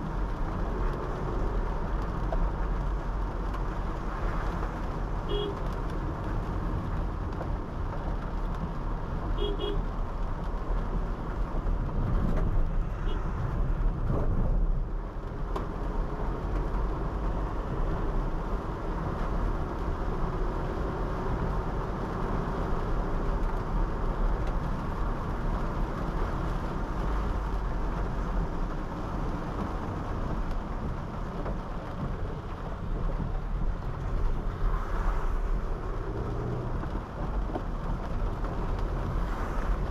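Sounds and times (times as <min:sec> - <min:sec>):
car road and engine noise: 0:00.0 - 0:39.9
car horn toots: 0:05.3 - 0:05.6, 0:09.4 - 0:09.8.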